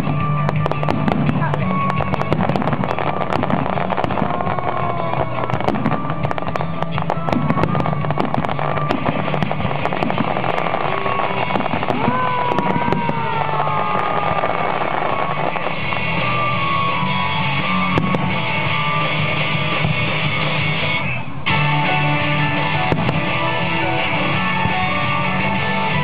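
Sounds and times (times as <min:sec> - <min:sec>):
fireworks crackling and popping: 0:00.0 - 0:26.0
rock music with guitar: 0:15.0 - 0:26.0.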